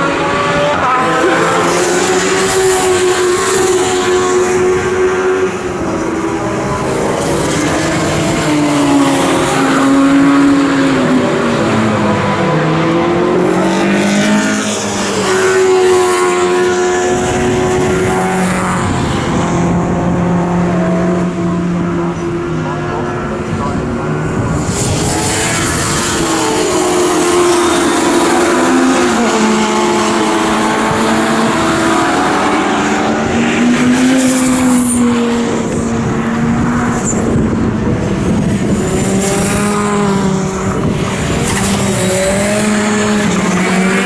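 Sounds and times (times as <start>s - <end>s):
race car engines accelerating: 0.0s - 44.0s.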